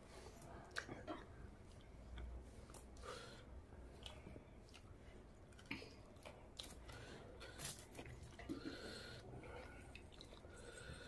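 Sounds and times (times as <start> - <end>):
wet chewing: 4.0 - 11.0.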